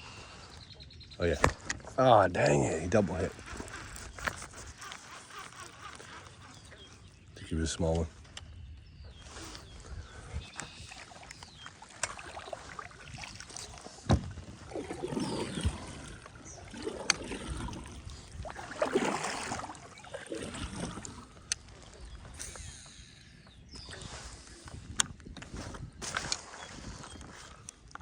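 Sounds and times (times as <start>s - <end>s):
water swishing: 10.7s - 22.3s
sharp knocks on kayak: 14.1s - 14.3s.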